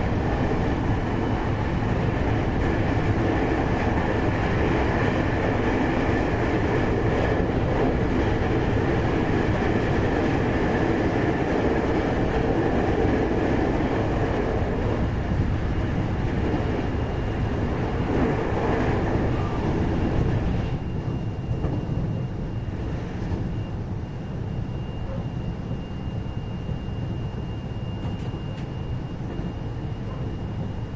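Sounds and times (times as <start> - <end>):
train wheels rumbling on rail: 0.0 - 30.9.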